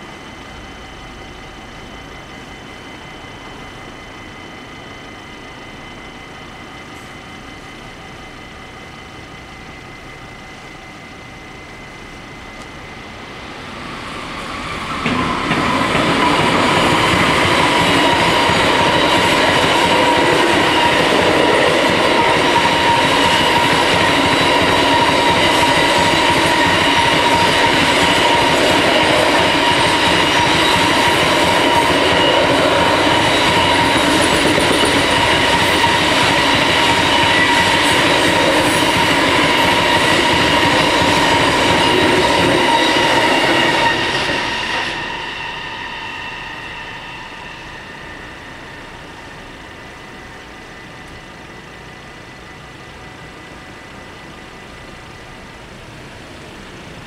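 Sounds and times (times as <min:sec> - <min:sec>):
freight train rumbling past: 0:00.0 - 0:57.0
high squealing train wheels: 0:00.0 - 0:57.0
wheels clickety-clack on rail joints: 0:14.4 - 0:45.1.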